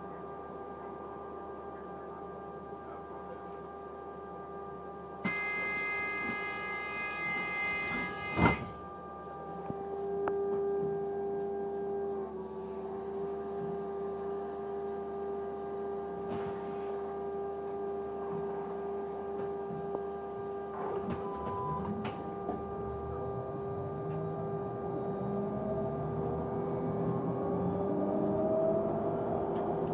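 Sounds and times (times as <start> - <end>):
steady humming whine: 0.0 - 29.9
bus running noise: 20.8 - 29.9.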